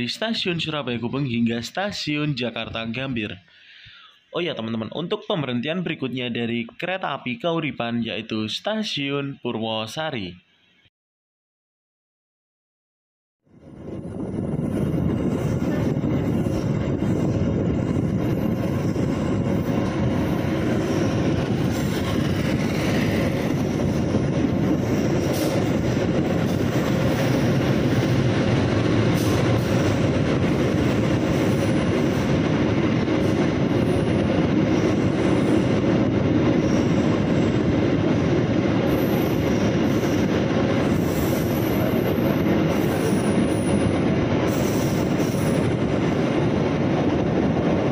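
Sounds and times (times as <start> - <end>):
train wheels rumbling on rails: 13.6 - 47.9.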